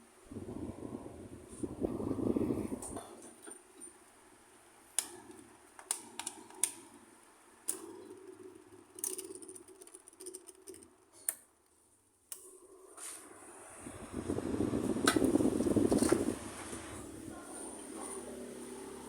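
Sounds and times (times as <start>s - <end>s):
fan motor hum: 0.0s - 3.4s, 4.0s - 11.3s, 12.3s - 19.0s
fan control clicks: 4.9s - 6.9s, 14.9s - 16.4s.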